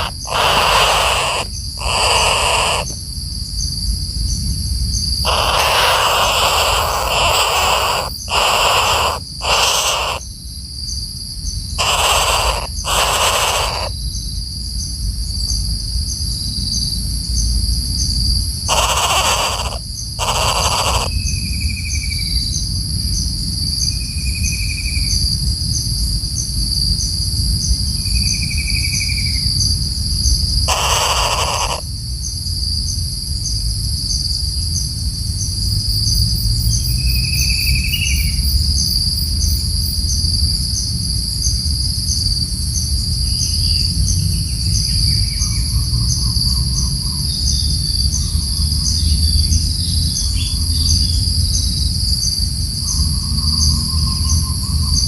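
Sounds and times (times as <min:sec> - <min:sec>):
woodpecker harsh alarm calls: 0:00.0 - 0:03.0, 0:05.2 - 0:10.3, 0:11.8 - 0:14.0, 0:18.7 - 0:21.4, 0:30.6 - 0:31.9
insect drone: 0:00.0 - 0:55.0.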